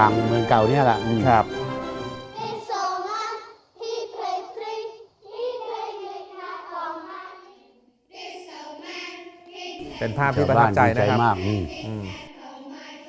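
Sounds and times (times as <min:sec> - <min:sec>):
children singing together: 0:00.0 - 0:03.0, 0:09.8 - 0:12.3.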